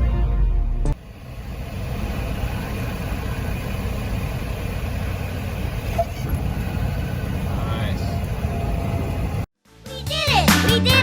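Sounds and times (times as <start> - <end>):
music: 0.0 - 1.0, 9.6 - 11.0
airplane piston engine running: 1.0 - 9.5.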